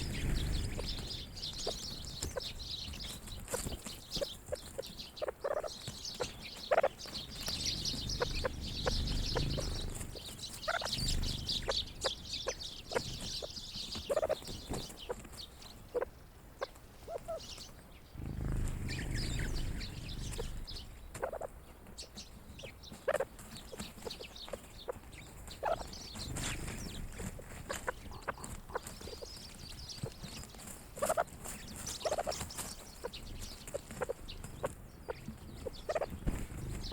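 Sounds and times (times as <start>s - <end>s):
high twittering: 0.0s - 2.2s, 7.4s - 13.0s, 18.2s - 20.8s.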